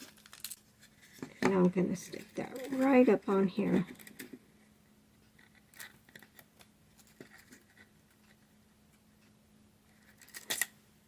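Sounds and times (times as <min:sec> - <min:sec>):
sticker clicks and rustles: 0:09.9 - 0:10.7.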